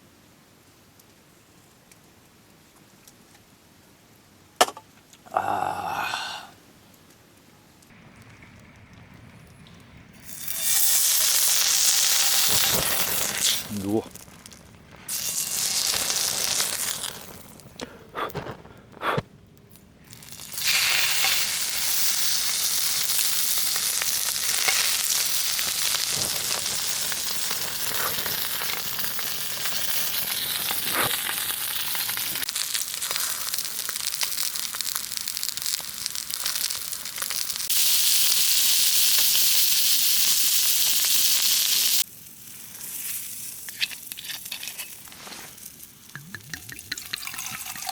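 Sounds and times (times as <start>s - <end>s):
food sizzling in a pan: 10.2s - 17.6s, 20.2s - 47.9s.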